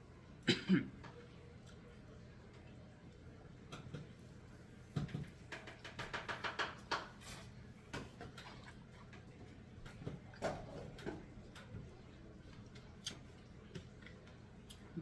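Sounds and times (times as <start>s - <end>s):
wet chewing clicks and smacks: 12.6s - 14.9s.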